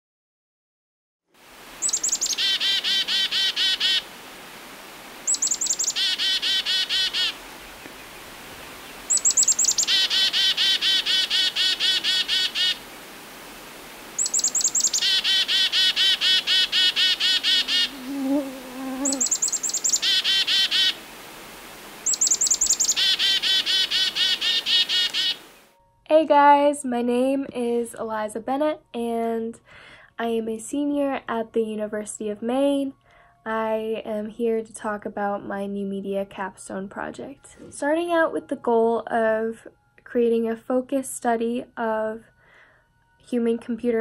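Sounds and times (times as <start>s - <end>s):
songbird singing with trills: 1.8s - 4.0s, 5.2s - 12.8s, 14.2s - 18.0s, 18.8s - 21.0s, 22.0s - 25.4s.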